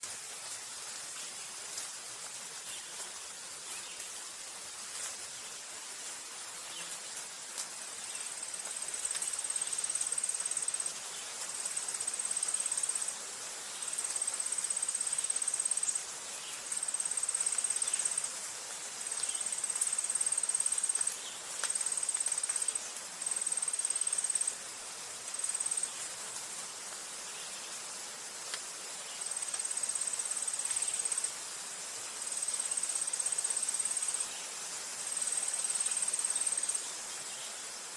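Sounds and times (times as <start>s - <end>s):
outdoor hiss: 0.0s - 37.9s
insect trilling: 8.4s - 10.9s, 11.6s - 13.1s, 13.8s - 16.0s, 16.8s - 18.3s, 19.1s - 24.6s, 25.3s - 26.0s, 29.2s - 31.3s, 32.3s - 34.4s, 35.1s - 36.8s
faint chirps and clicks: 16.7s - 24.5s, 28.4s - 31.3s.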